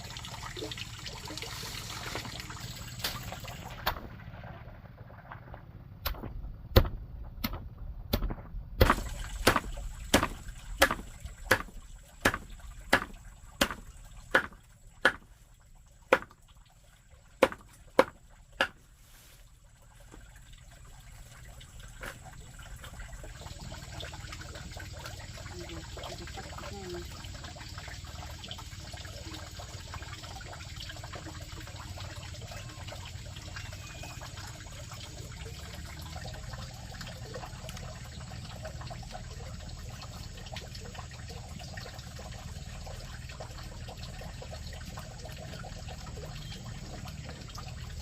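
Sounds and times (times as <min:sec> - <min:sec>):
trickling water: 0:00.0 - 0:48.0
sharp evenly spaced knocks: 0:06.0 - 0:15.3, 0:16.1 - 0:16.4, 0:17.4 - 0:18.8.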